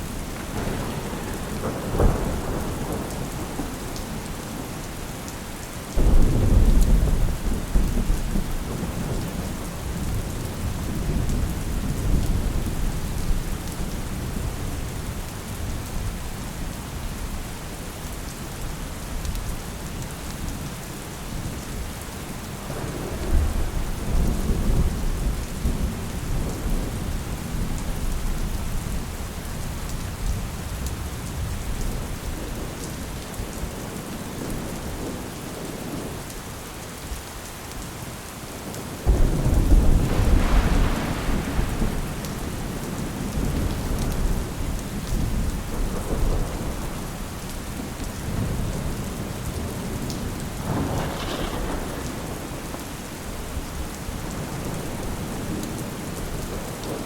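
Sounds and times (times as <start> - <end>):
steady rain: 0.0 - 57.0
rolling thunder: 0.1 - 4.8, 6.0 - 14.5, 22.6 - 29.4, 39.0 - 57.0
loud thunder clap: 39.1 - 44.5, 50.6 - 52.6.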